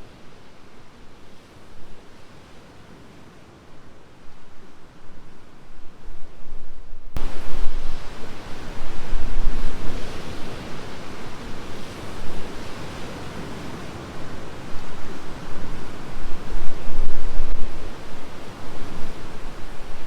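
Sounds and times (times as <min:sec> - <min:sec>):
strong wind buffeting microphone: 0:05.7 - 0:20.0.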